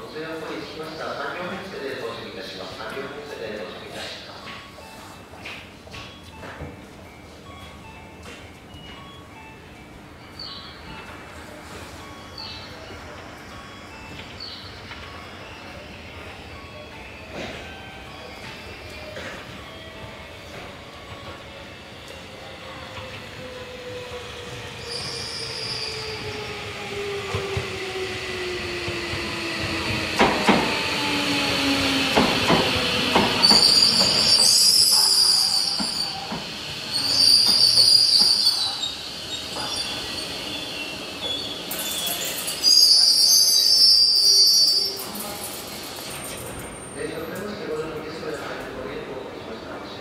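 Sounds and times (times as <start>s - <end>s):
high-pitched wheel and brake squeals: 24.8s - 26.4s, 33.4s - 36.3s, 36.9s - 45.2s.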